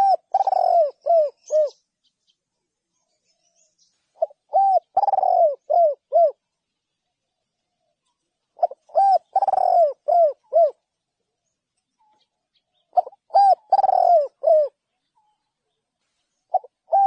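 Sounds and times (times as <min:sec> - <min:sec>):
dove cooing: 0:00.0 - 0:01.8, 0:04.2 - 0:06.4, 0:08.5 - 0:10.9, 0:12.8 - 0:14.8, 0:16.5 - 0:17.0.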